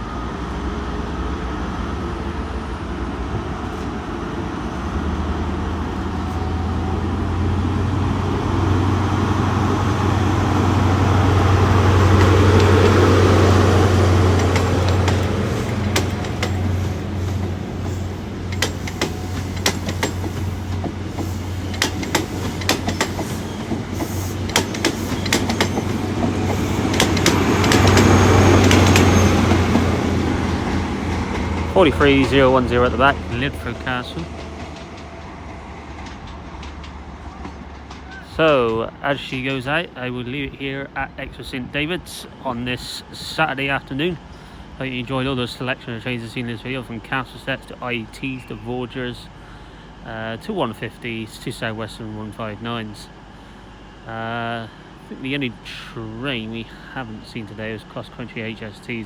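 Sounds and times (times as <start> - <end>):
train diesel engines droning: 0.0 - 59.0
train wheels clacking on rails: 6.1 - 39.4.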